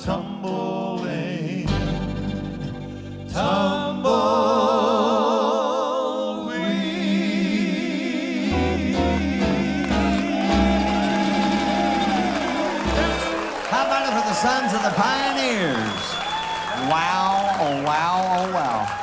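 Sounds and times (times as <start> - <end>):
country-western band: 0.0 - 4.4, 8.5 - 18.8
male vocal harmony singing: 0.0 - 16.1.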